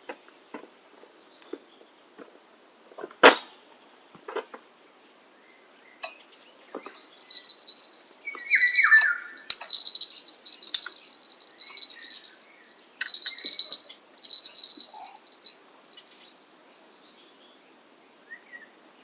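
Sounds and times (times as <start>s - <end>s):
birds singing rapid trills: 7.1s - 16.5s
descending whistled bird notes: 8.2s - 9.4s.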